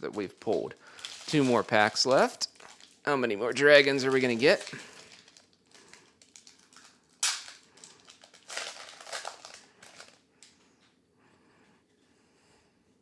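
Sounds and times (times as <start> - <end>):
foil wrapper ripping: 0.0 - 10.2
foil wrapper crinkling: 0.0 - 10.6.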